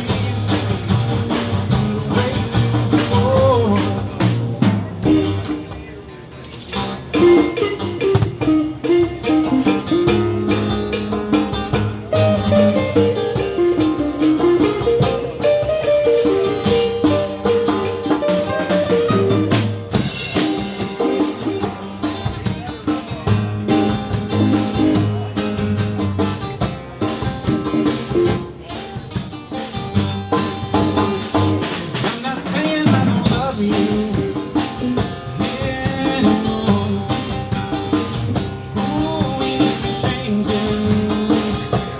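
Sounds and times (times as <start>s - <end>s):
electric guitar melody: 0.0s - 32.2s, 32.8s - 41.9s
blues band playing: 0.0s - 41.9s.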